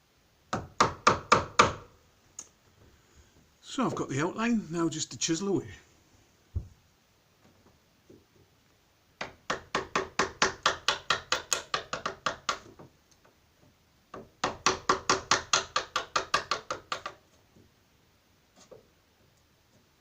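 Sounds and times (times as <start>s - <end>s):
chisel tapping into wood: 0.5s - 1.8s, 9.2s - 12.9s, 14.1s - 17.2s.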